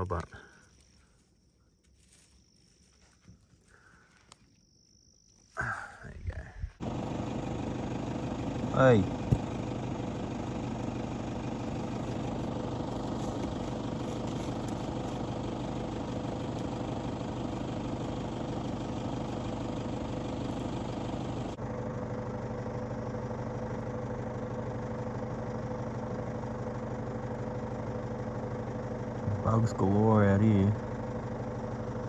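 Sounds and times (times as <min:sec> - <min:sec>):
vehicle engine idling: 0:00.0 - 0:04.5, 0:05.3 - 0:32.0.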